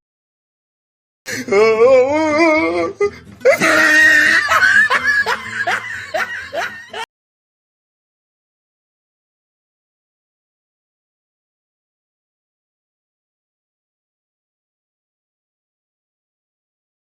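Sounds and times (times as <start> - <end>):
person laughing loudly: 2.3 - 7.1.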